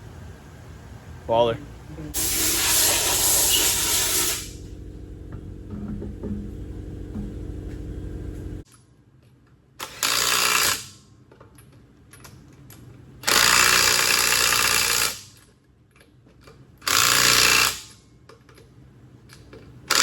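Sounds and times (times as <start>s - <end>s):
power tool bursts: 2.2s - 4.7s.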